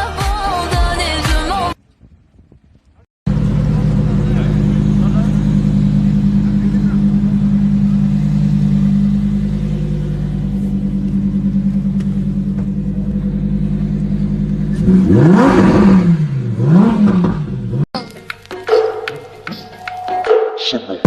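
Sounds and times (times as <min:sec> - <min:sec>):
car engine idling and revving: 0:03.3 - 0:18.0.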